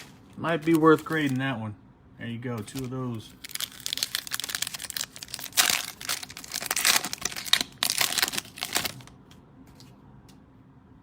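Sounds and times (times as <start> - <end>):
plastic wrapper crinkling: 0.0 - 1.5, 2.6 - 9.2.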